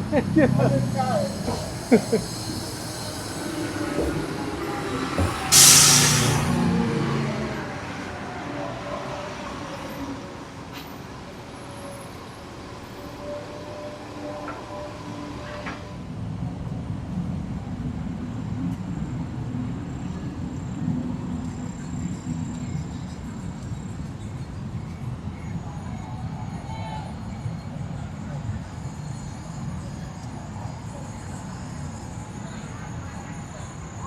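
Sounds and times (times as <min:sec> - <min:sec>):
train passing: 0:00.0 - 0:34.0
train wheels squealing: 0:00.4 - 0:16.2, 0:18.7 - 0:34.0
sharp loud hiss: 0:01.2 - 0:06.8.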